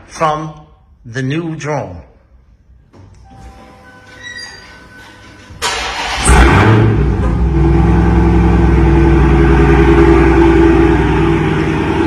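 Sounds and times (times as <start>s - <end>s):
car starter cranking: 5.0s - 7.6s
car engine idling: 5.6s - 12.0s.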